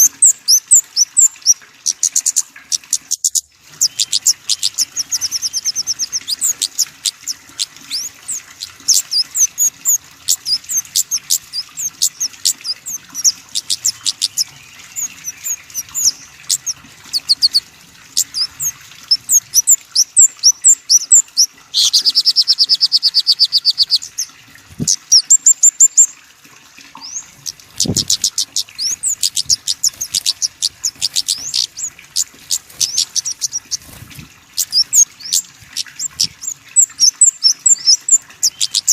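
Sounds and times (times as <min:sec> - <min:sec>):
small songbirds singing: 0:00.0 - 0:26.2, 0:26.8 - 0:38.9.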